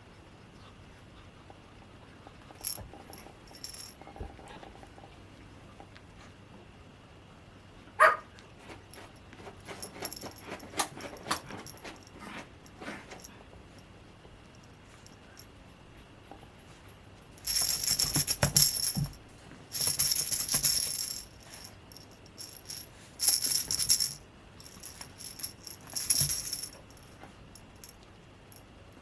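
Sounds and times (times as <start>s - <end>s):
rattle shaken: 2.6s - 3.9s, 9.6s - 12.1s, 17.4s - 28.0s.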